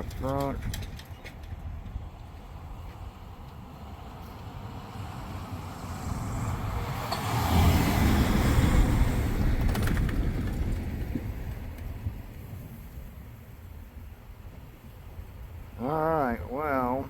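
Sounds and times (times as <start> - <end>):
motor vehicle driving past: 3.0 - 10.8.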